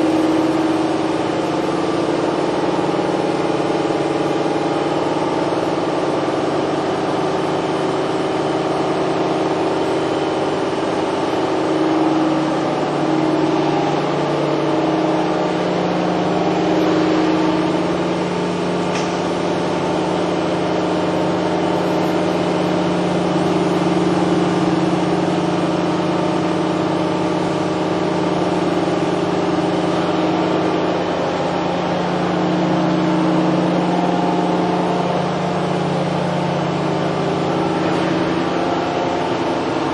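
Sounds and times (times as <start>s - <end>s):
machine mechanical hum: 0.0s - 39.9s.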